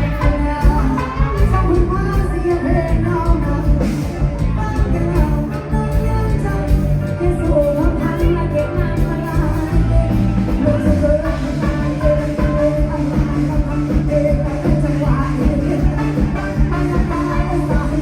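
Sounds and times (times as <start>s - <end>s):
heavy bass: 0.0s - 18.0s
live band music: 0.0s - 18.0s
person singing: 0.0s - 18.0s.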